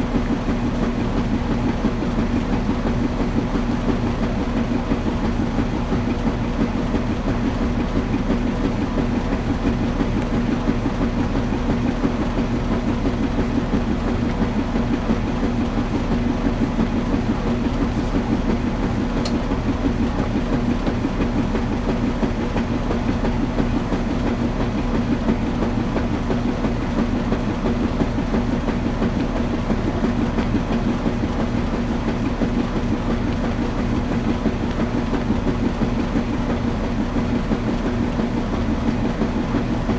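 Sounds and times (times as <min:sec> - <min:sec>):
washing machine churning: 0:00.0 - 0:39.9.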